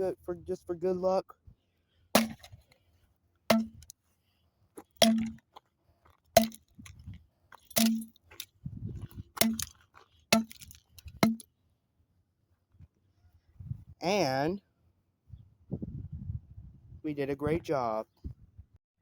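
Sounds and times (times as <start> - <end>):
broken pieces clinking: 7.6 - 8.5.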